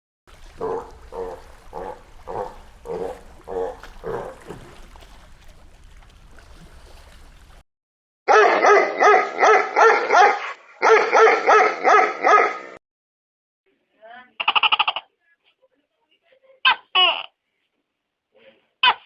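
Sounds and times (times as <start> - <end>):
dog yapping: 0.6 - 4.6, 8.3 - 12.8.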